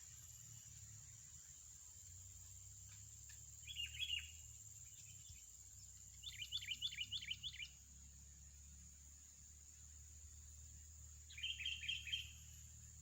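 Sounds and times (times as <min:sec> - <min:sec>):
small bird chirping: 0:00.0 - 0:07.8, 0:10.9 - 0:13.0.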